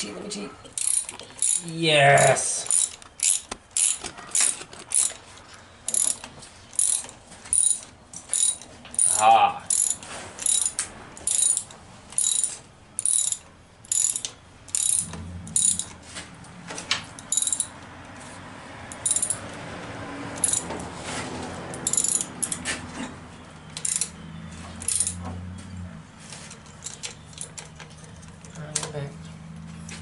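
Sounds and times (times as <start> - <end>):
ratchet wrench clicking: 0.8 - 5.2, 5.9 - 16.0, 17.2 - 17.7, 18.9 - 19.4, 20.4 - 20.7, 21.8 - 22.6, 23.8 - 24.1, 24.8 - 25.2.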